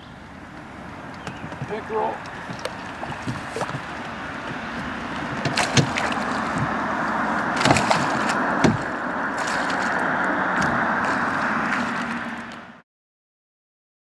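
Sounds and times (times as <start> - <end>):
steady rushing noise: 0.3 - 12.8
sharp knocks and clicks: 1.1 - 6.8.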